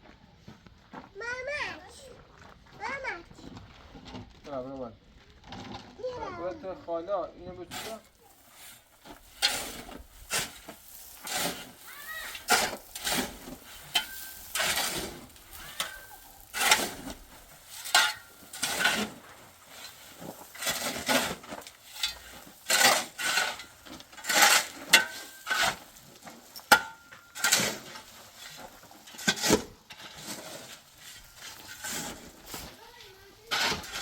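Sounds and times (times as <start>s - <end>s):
shovel scraping mortar: 7.6s - 34.0s.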